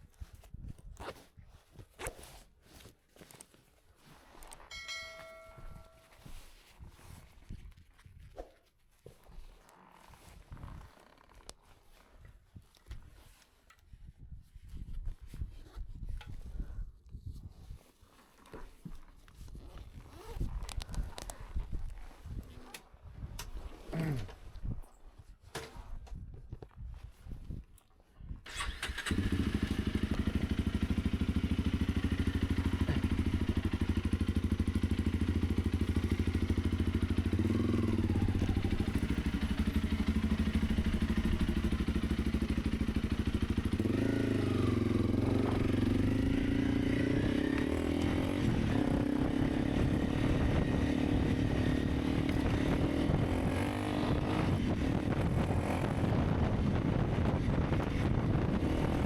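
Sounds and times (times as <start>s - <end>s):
motorcycle engine idling: 28.5s - 59.0s.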